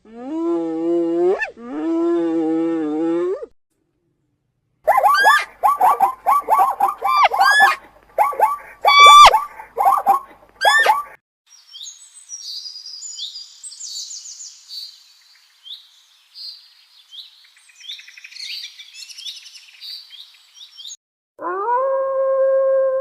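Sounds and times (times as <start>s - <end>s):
steady pitched howl: 4.9s - 11.1s
brief pitched animal call: 4.9s - 11.2s
songbirds chirping and trilling: 5.0s - 21.0s.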